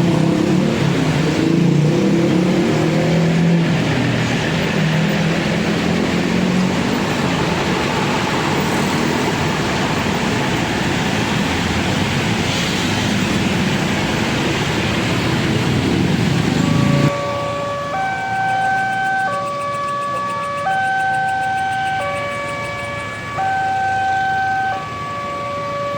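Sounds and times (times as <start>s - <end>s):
train rumbling past: 2.7s - 17.6s
electronic crossing warning tones: 16.2s - 25.9s.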